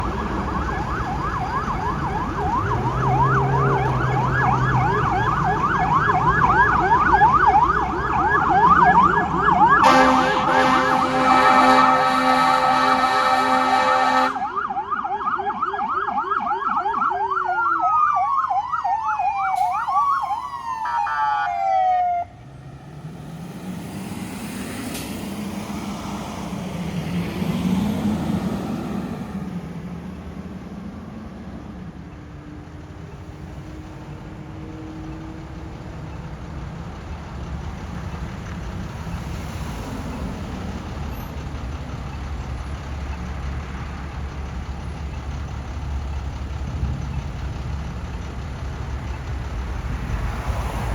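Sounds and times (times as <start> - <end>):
electronic sirens yelping and wailing: 0.0 - 22.4
heavy truck engine and road rumble: 0.0 - 50.9.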